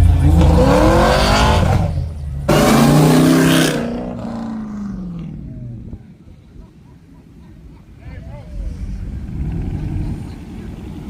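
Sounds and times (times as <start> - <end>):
car engine revving hard: 0.0 - 5.3.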